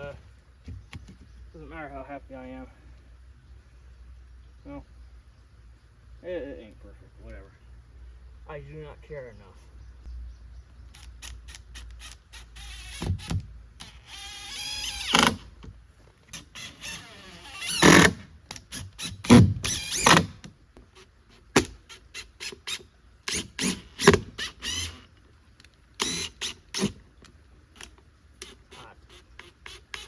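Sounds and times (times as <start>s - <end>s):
squealing wood scrapes: 11.0s - 15.5s, 16.1s - 20.4s.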